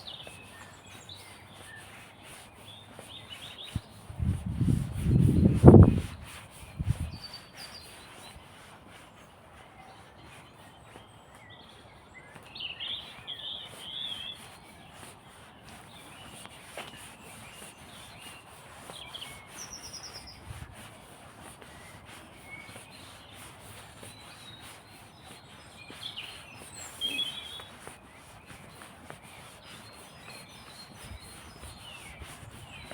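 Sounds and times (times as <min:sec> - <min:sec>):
songbirds chirping: 0:00.0 - 0:32.9
high bird trill: 0:26.0 - 0:27.7.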